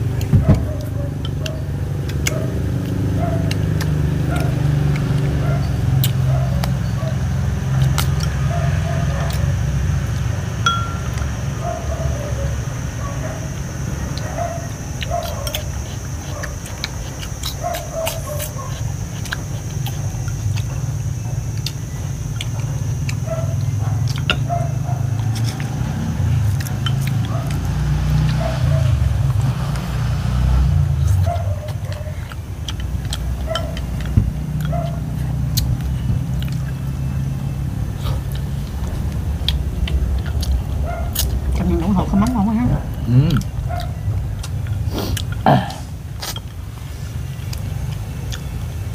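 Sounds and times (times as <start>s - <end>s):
chopsticks and spoons clinking bowls: 10.6s - 11.4s, 33.4s - 34.9s
thin high tone: 10.6s - 11.6s
low rumble: 35.7s - 44.9s.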